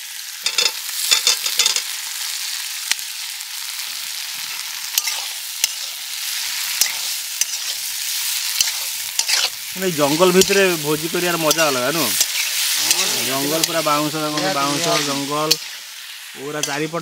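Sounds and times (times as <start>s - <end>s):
spices sizzling in hot oil: 0.0s - 17.0s
spatula scraping and knocking pan: 8.6s - 9.6s.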